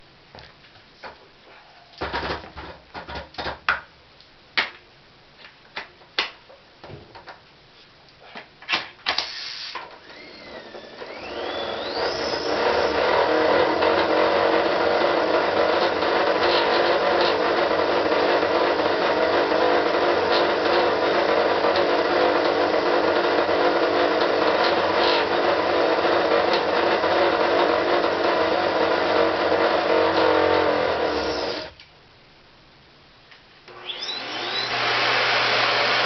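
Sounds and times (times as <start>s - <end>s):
motor running with whine: 10.1s - 13.0s.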